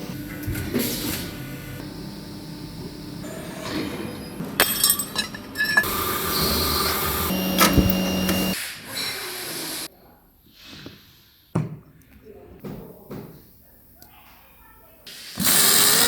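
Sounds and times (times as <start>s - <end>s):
factory machinery running: 0.0s - 9.9s.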